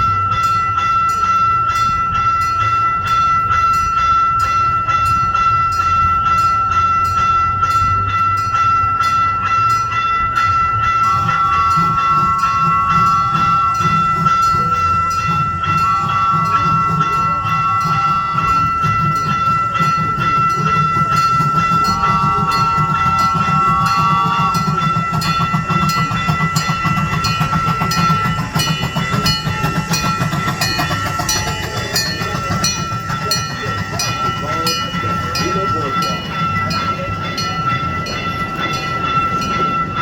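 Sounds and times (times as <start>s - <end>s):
miniature train rumbling: 0.0s - 40.0s.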